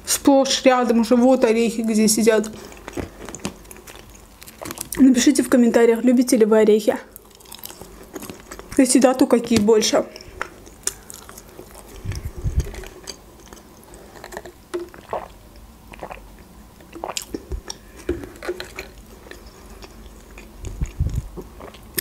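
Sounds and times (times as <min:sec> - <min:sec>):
wet chewing: 0:02.4 - 0:05.0, 0:07.1 - 0:08.8, 0:09.5 - 0:22.0.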